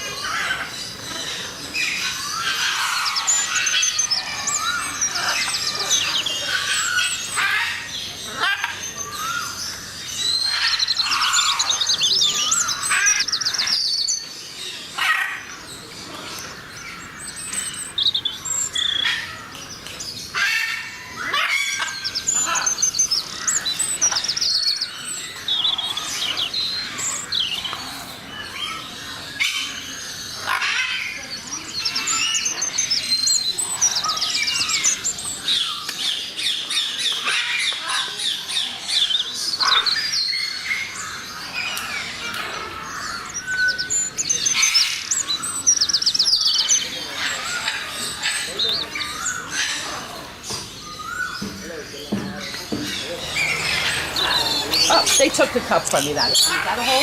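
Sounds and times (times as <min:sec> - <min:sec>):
flock of birds chirping: 0:00.0 - 0:57.0.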